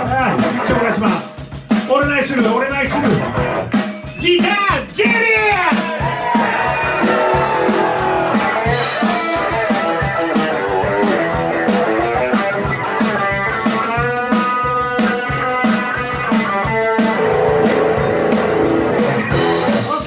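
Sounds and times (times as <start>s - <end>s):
rock drum beat: 0.0s - 20.0s
electric guitar solo: 5.4s - 19.7s.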